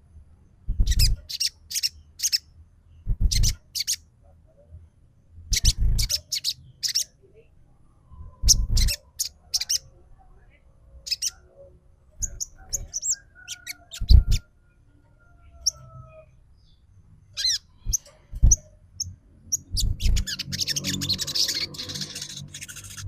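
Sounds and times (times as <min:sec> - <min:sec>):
dull low thumps: 0:00.7 - 0:01.2, 0:03.0 - 0:03.5, 0:17.8 - 0:18.6, 0:19.6 - 0:20.2
dense bird chattering: 0:00.8 - 0:04.1, 0:05.5 - 0:07.2, 0:08.4 - 0:09.8, 0:12.2 - 0:14.5, 0:17.3 - 0:18.7, 0:19.5 - 0:23.0.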